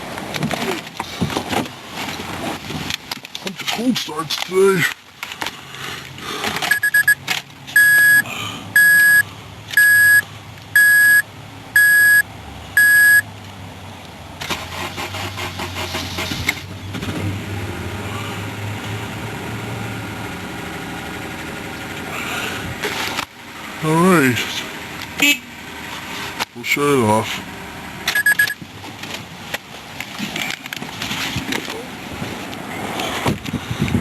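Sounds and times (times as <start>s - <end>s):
car engine cranking and idling: 0.0s - 34.0s
dashboard warning chime: 6.7s - 7.2s, 7.8s - 8.2s, 8.8s - 9.2s, 9.8s - 10.2s, 10.8s - 11.2s, 11.8s - 12.2s, 12.8s - 13.2s, 28.1s - 28.6s.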